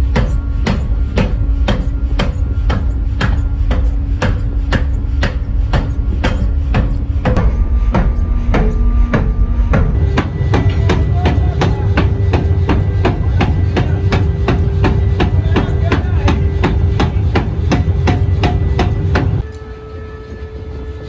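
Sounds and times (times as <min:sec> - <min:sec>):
machine hum and rumble: 0:09.4 - 0:19.5
hammer blows on metal: 0:10.0 - 0:19.5.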